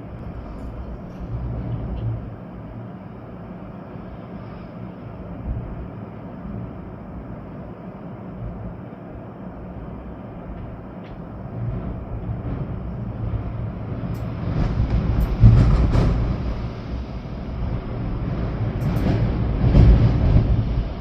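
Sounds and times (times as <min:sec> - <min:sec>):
rain: 0:00.0 - 0:21.0
storm wind gusting through trees: 0:00.0 - 0:21.0
wind buffeting microphone: 0:04.9 - 0:21.0.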